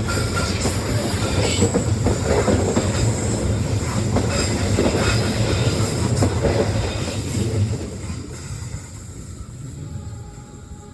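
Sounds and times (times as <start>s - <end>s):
train wheels clattering on rails: 0.0s - 9.8s.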